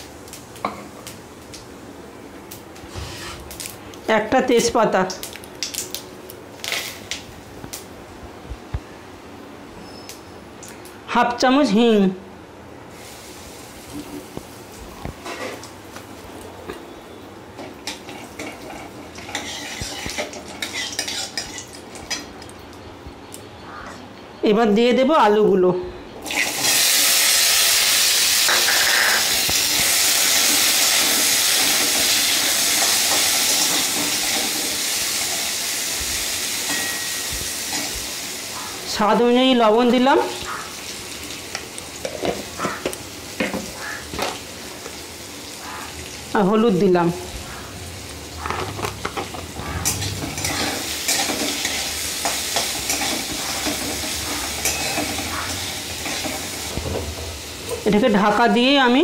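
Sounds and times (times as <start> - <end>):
potatoes sizzling in oil: 0.0 - 1.9, 17.6 - 22.3, 26.2 - 59.0
spatula scraping pan: 18.1 - 21.7, 48.4 - 56.4.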